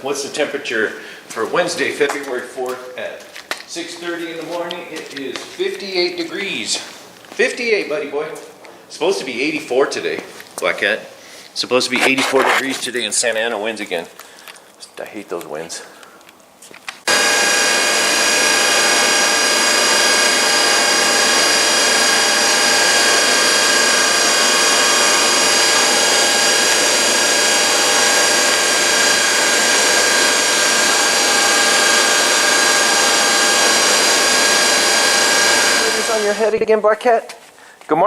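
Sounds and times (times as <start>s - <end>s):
electric motor hissing and whining: 17.1s - 36.5s.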